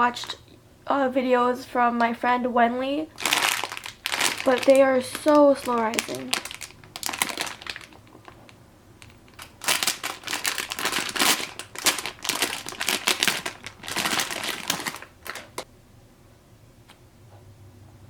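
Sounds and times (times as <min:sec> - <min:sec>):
plastic packaging crinkling: 0:03.1 - 0:15.7.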